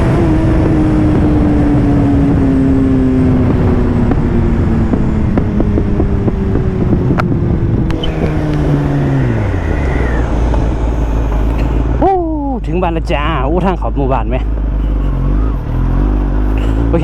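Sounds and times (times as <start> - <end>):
wind on microphone: 0.0 - 12.0
motorcycle engine winding down: 7.7 - 12.0.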